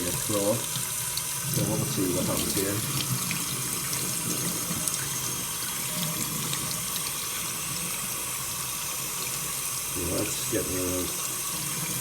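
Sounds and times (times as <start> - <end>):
tap water splashing over shoe: 0.0 - 3.5.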